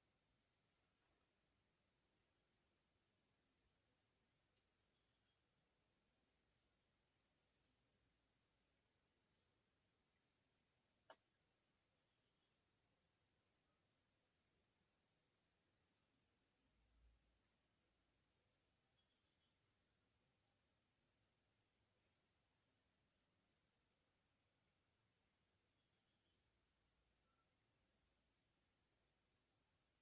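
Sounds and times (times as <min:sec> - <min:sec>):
insect chorus trilling: 0:10.9 - 0:30.0
faint click: 0:11.0 - 0:11.2.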